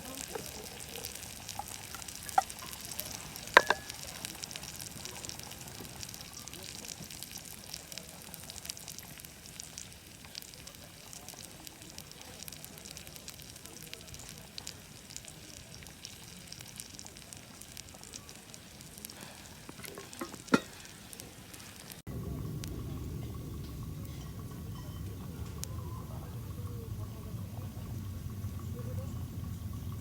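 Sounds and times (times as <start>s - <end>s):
steak sizzling in a pan: 0.0s - 22.1s.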